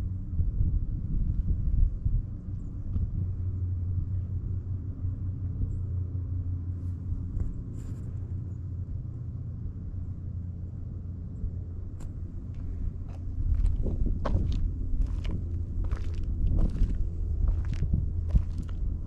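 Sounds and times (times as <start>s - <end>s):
low rumble with droning hum: 0.0s - 19.0s.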